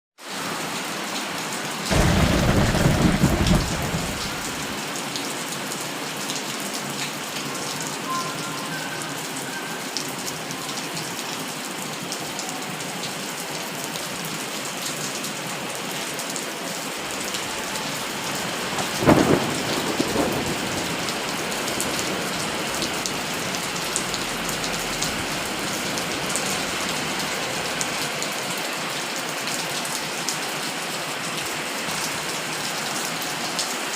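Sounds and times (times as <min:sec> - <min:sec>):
steady rain falling: 0:00.2 - 0:33.9
loud thunderclap: 0:01.9 - 0:04.8, 0:17.1 - 0:28.0
low thunder rumble: 0:01.9 - 0:04.8, 0:17.0 - 0:28.0.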